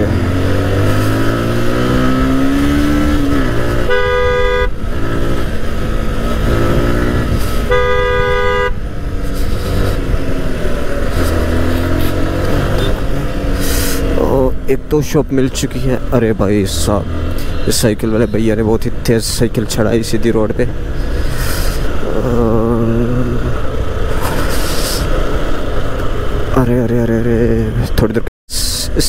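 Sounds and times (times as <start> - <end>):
motorcycle engine accelerating: 0.0 - 14.7
vehicle horn blasts: 3.7 - 4.8, 7.6 - 8.8.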